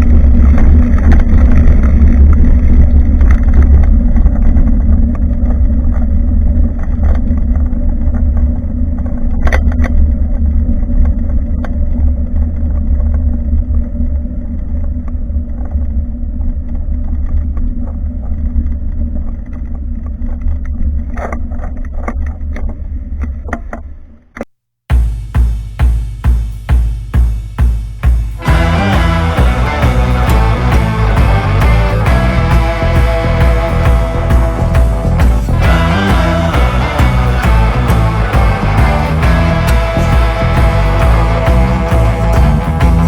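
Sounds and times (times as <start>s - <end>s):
bicycle tyres on road: 0.0s - 23.5s.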